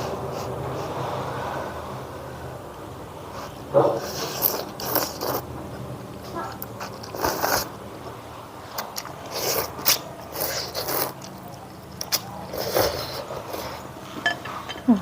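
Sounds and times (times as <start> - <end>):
food being bitten and chewed: 3.4 - 7.8, 8.6 - 14.6.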